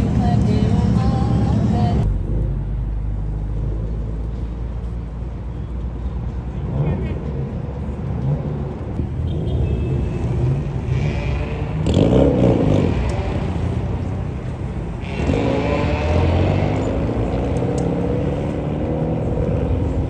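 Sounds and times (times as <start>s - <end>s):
car accelerating: 0.0s - 5.3s, 6.6s - 20.0s
car engines running: 0.0s - 20.0s.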